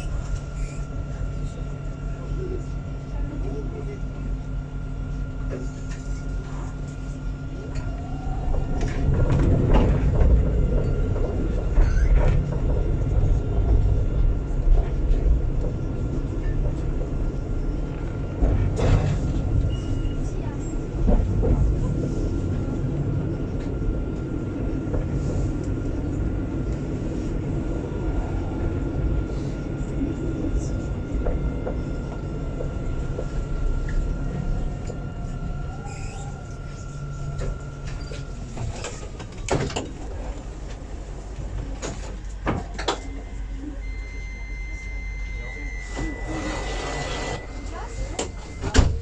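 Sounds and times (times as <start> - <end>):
tram rumble: 0.0 - 49.0
steady beep: 43.1 - 48.8.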